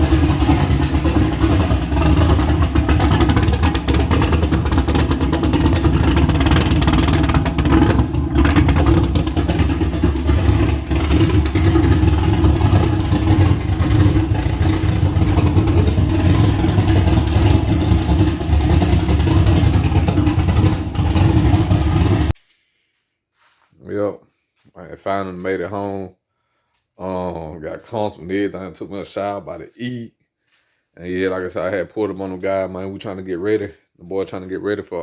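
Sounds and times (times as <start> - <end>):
car engine and road noise: 0.0 - 22.4.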